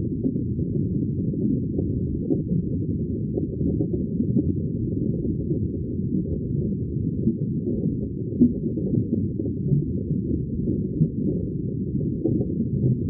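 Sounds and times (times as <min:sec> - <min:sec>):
underwater bubbling rumble: 0:00.0 - 0:13.0.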